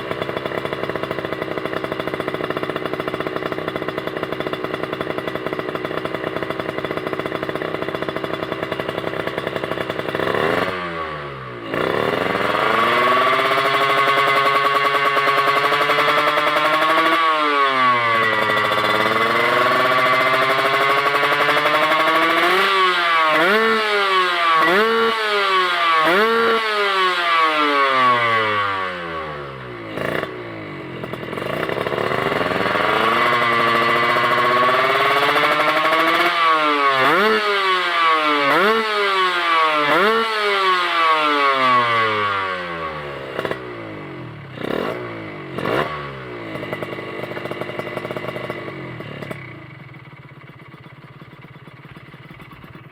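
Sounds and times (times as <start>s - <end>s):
motorcycle engine revving: 0.0s - 52.9s
sharp exhaust cracks: 18.0s - 22.5s.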